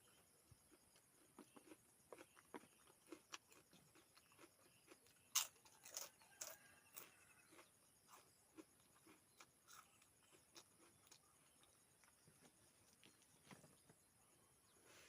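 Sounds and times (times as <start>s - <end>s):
person chewing: 0.7s - 12.2s
food crunching: 0.7s - 13.2s.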